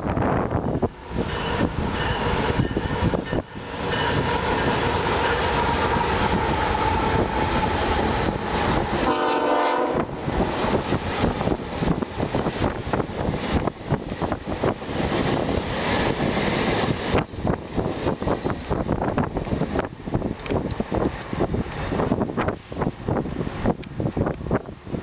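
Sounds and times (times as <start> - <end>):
diesel locomotives passing: 0.0 - 25.0
rail cars rolling: 0.0 - 25.0
wind noise on microphone: 0.0 - 25.0
train air horn blast: 9.0 - 10.2.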